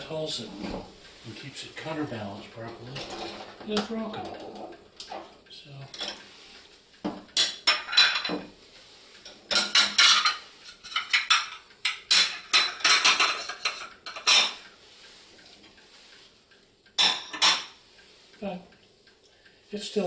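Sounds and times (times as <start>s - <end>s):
dishes and cutlery clattering: 2.7s - 5.3s, 5.9s - 6.2s, 7.1s - 8.5s, 9.3s - 14.6s, 17.0s - 17.8s.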